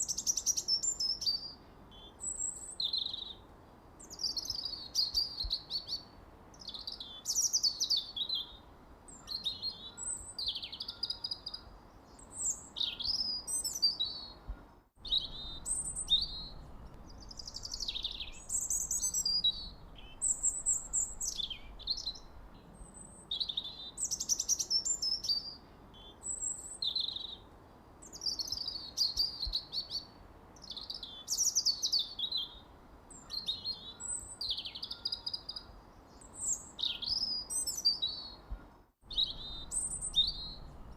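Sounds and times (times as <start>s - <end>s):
faint steady hiss: 0.0s - 40.9s
songbird singing and chirping: 0.0s - 40.9s.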